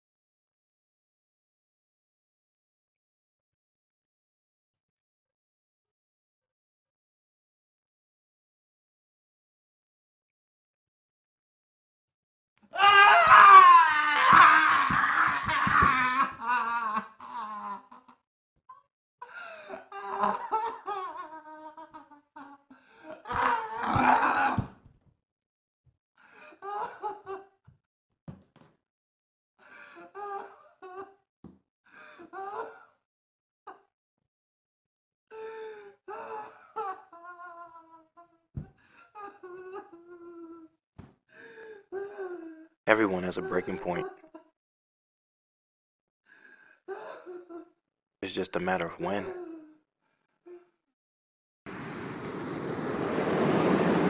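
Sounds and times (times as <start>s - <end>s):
man wailing: 12.8s - 17.6s, 23.3s - 24.7s
man sobbing: 12.9s - 18.2s, 19.2s - 24.6s, 39.2s - 40.7s, 43.4s - 44.4s, 49.2s - 49.8s
man laughing wildly: 14.1s - 18.0s, 19.9s - 22.5s.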